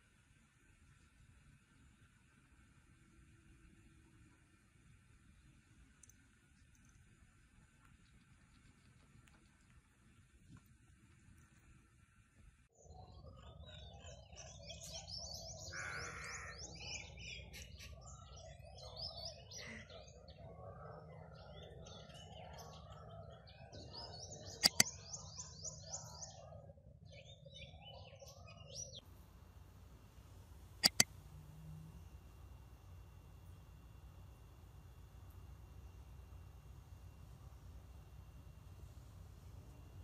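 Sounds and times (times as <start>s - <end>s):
small birds chirping: 12.7s - 40.0s
sharp clicks: 24.6s - 24.9s, 30.8s - 31.3s.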